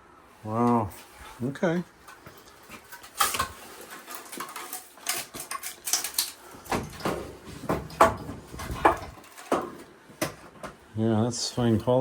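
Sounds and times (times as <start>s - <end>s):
sheet metal clanking and rattling: 3.0s - 9.8s.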